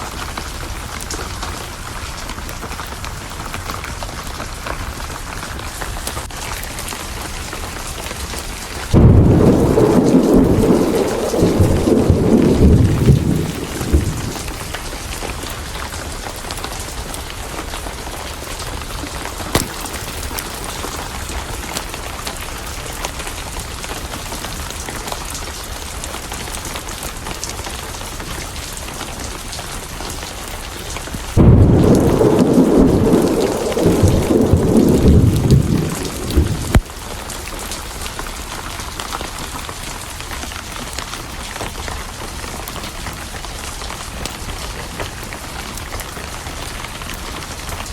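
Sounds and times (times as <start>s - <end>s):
heavy rain: 0.0s - 47.9s
thunder rumbling: 8.9s - 16.1s, 31.3s - 36.9s
wood fire popping: 19.5s - 21.8s, 31.4s - 36.9s.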